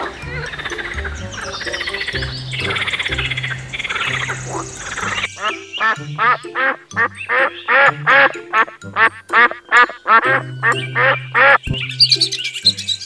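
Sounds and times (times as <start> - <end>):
duck quacking: 0.0 - 12.2
background music with bass line: 0.0 - 13.0
high chirping: 0.0 - 13.0.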